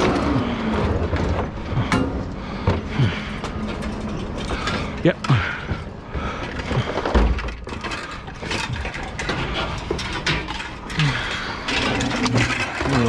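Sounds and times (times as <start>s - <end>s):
scrap metal clattering: 0.0s - 13.0s.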